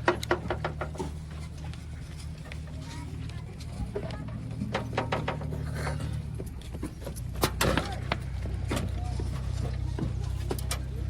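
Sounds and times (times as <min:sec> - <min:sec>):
metal knocks and clanks: 0:00.0 - 0:01.2, 0:04.6 - 0:08.9
diesel engine running: 0:00.0 - 0:11.0.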